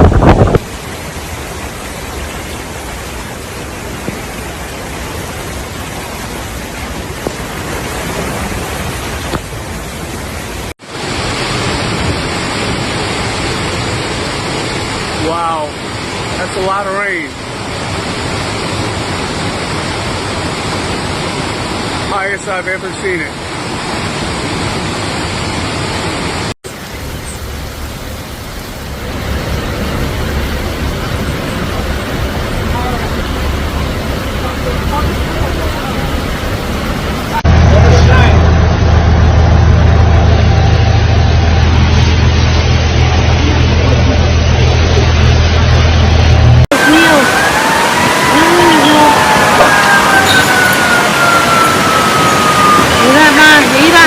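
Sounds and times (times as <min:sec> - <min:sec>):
heavy rain: 0:00.0 - 0:54.0
rushing water: 0:00.0 - 0:54.0
wind: 0:00.0 - 0:54.0
deep low rumble: 0:27.4 - 0:46.7.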